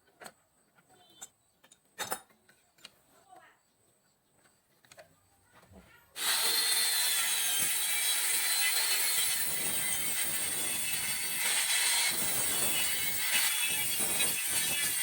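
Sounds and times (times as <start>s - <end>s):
circular saw cutting wood: 6.2s - 15.0s.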